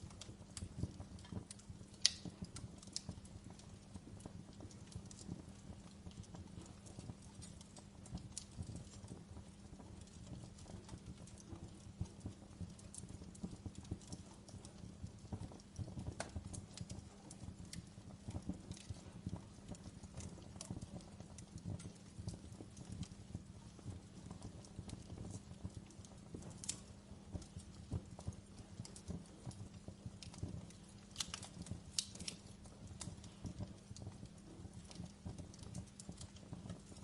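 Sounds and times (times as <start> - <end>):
logs crackling in fireplace: 0.0 - 37.0
low rumble of flames: 0.0 - 37.0.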